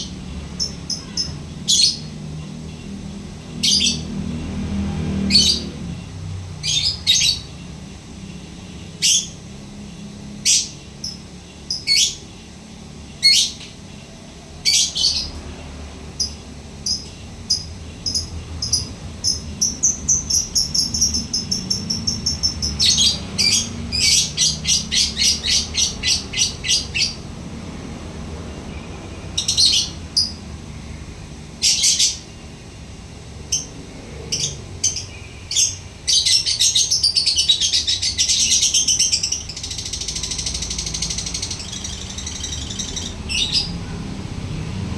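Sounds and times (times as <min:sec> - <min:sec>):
lovebird chirping: 0:10.4 - 0:12.3, 0:16.2 - 0:27.2, 0:29.4 - 0:30.4, 0:33.5 - 0:44.0
lovebird rapid chatter: 0:16.2 - 0:27.2, 0:33.5 - 0:43.7.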